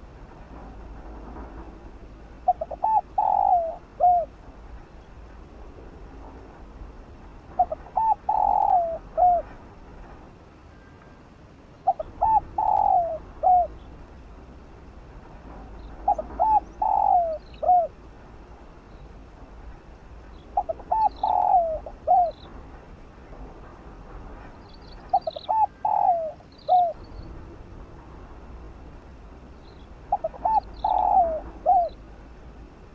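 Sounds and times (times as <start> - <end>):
dove cooing: 2.4 - 4.4, 7.6 - 9.6, 11.8 - 13.9, 15.9 - 18.0, 20.6 - 22.5, 25.1 - 27.0, 30.1 - 32.0
faint high bird chirps: 20.3 - 22.5, 29.6 - 32.0.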